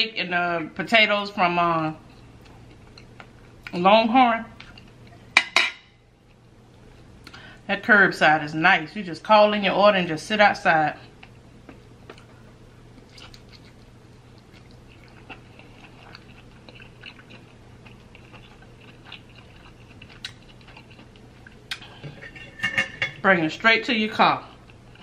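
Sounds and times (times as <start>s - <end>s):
person chewing: 11.1s - 22.0s.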